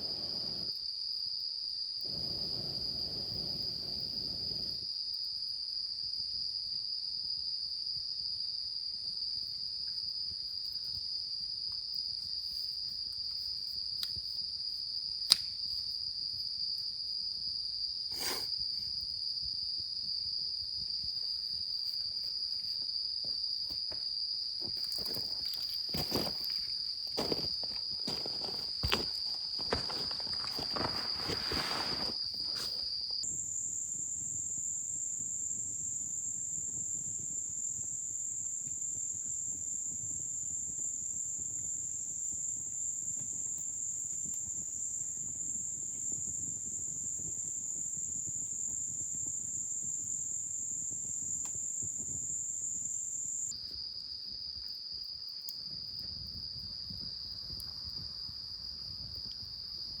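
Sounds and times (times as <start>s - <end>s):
crickets trilling: 0.0s - 5.9s, 6.8s - 60.0s
rustling in leaves: 28.1s - 32.8s.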